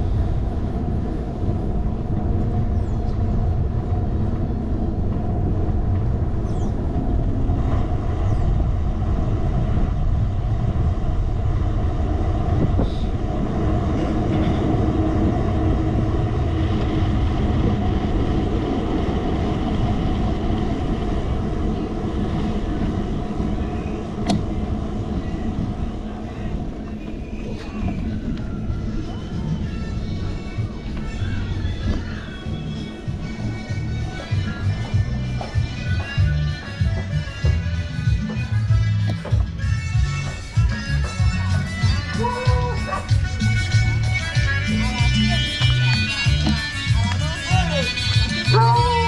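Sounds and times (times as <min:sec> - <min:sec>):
bicycle tyres rolling on road: 0:00.0 - 0:38.5
wind buffeting microphone: 0:00.0 - 0:49.0.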